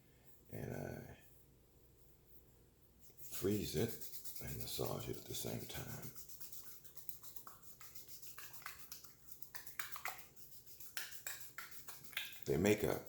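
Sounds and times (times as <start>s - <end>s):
ice cube rubbing on skin: 3.1s - 13.0s.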